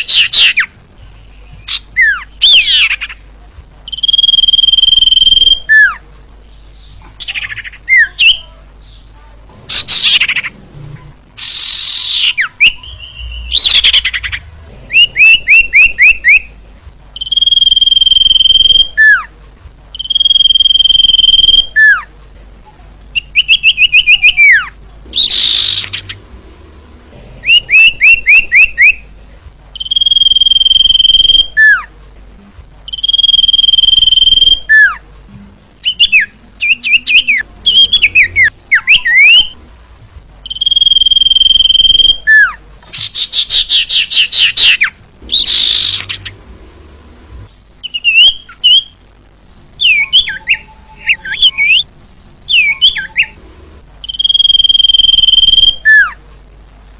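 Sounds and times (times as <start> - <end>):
bird song whistles and trills: 0.0 - 3.2, 3.9 - 6.0, 11.4 - 16.5, 17.2 - 19.3, 19.9 - 22.1, 23.2 - 26.2, 27.4 - 29.0, 29.8 - 31.9, 32.9 - 35.0, 35.8 - 39.6, 40.4 - 46.3, 47.8 - 49.0, 49.8 - 51.9, 52.5 - 53.4, 54.0 - 56.2.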